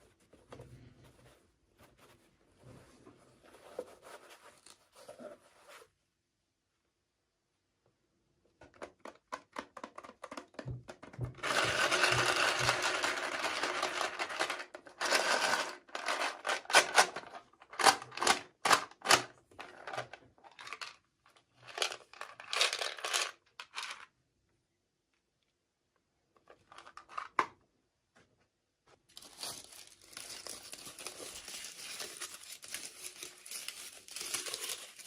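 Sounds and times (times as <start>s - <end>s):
packaging crinkling and tearing: 29.1s - 35.0s.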